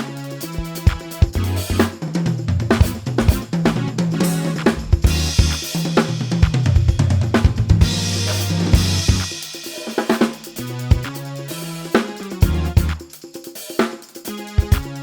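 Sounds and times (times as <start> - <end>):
drum kit played fast: 0.0 - 15.0
sustained bass line: 1.2 - 2.0, 2.8 - 5.6, 7.6 - 9.3, 12.4 - 13.0.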